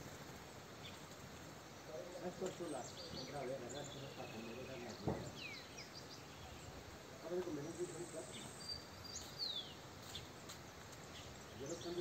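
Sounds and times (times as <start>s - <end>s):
small birds chirping: 0.0s - 12.0s
soft thump: 5.0s - 5.4s.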